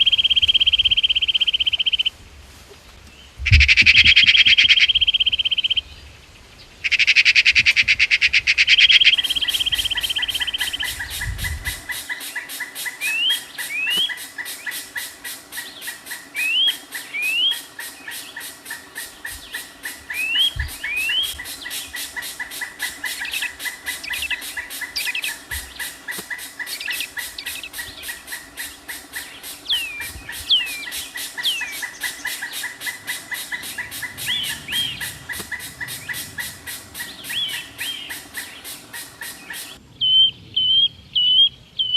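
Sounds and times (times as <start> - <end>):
harsh bird calls: 0.0 - 2.1, 3.3 - 41.9
short rising bird chirps: 8.7 - 40.7
fast-pulsing chorus: 8.9 - 39.8.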